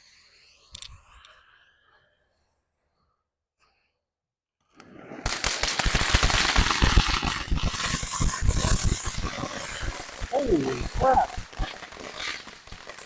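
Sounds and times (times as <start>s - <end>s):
firework hissing and crackling: 0.0s - 1.9s, 4.8s - 13.0s.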